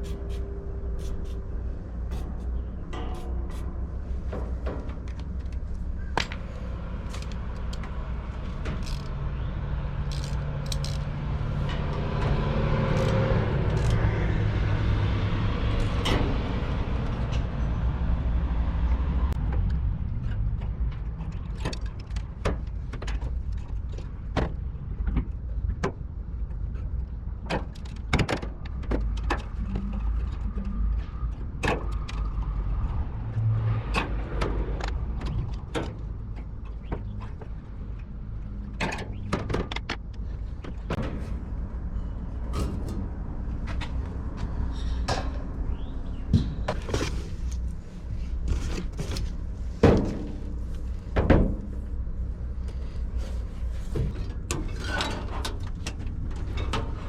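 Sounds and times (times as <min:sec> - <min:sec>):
low vehicle rumble: 0:00.0 - 0:57.0
sharp clicks and knocks: 0:33.8 - 0:41.6.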